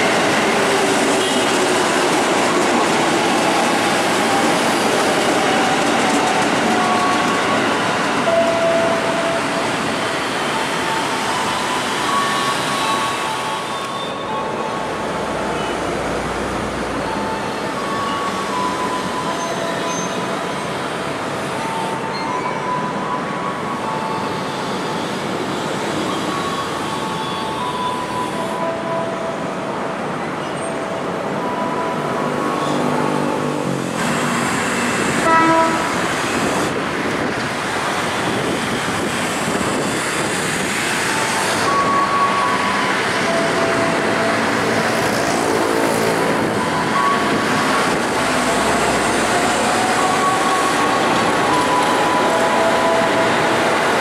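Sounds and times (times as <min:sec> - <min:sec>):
electric train rumbling: 0:00.0 - 0:54.0
train horn toot: 0:35.2 - 0:36.1.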